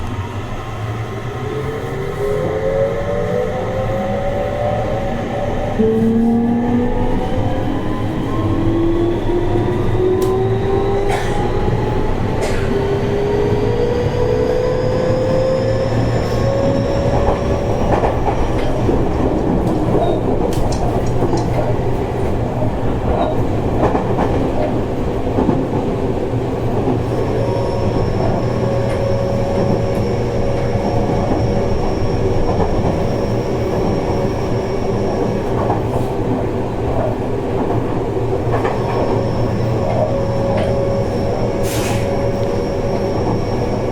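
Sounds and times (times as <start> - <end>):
wheel and rail rumble: 0.0 - 43.9
train motor whine: 38.5 - 43.9.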